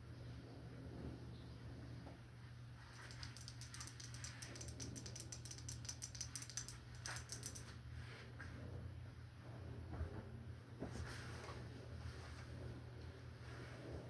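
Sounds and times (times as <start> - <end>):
light crisp taps: 2.9 - 7.7.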